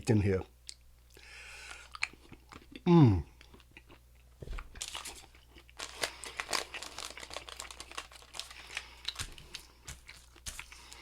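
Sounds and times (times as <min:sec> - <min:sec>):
wrapper crinkling: 0:04.7 - 0:11.0.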